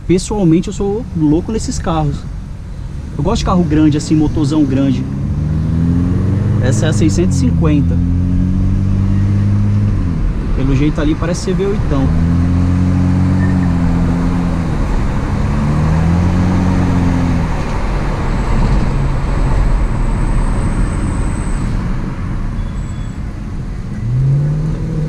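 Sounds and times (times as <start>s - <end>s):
car engine drone: 0.0s - 25.0s
road and traffic noise: 0.0s - 25.0s.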